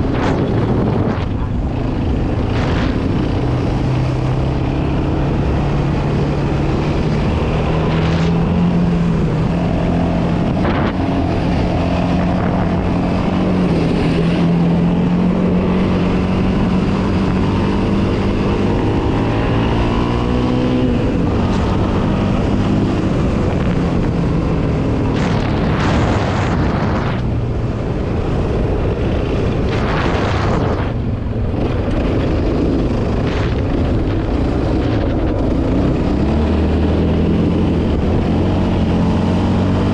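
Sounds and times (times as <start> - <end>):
quad engine running: 0.0 - 39.9.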